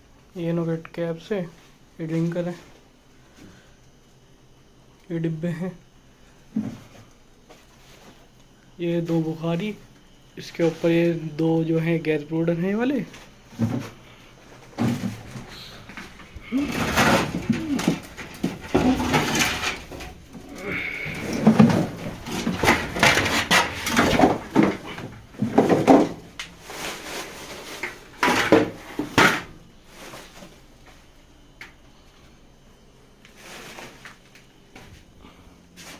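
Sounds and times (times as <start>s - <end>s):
objects knocking and clattering: 14.6s - 29.6s.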